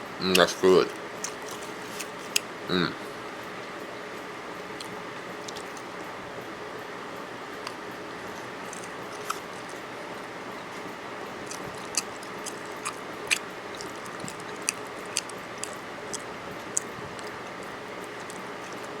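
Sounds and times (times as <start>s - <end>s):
steady background hum: 0.0s - 19.0s
person chewing food: 0.3s - 2.5s, 4.8s - 6.0s, 8.4s - 19.0s
mouth clicks and smacks: 11.4s - 19.0s.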